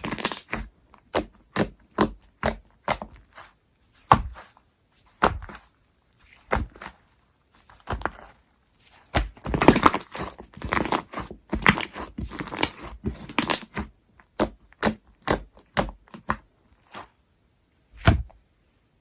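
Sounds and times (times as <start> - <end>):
slime popping: 0.0 - 3.2
slime squishing and crackling: 0.0 - 17.1.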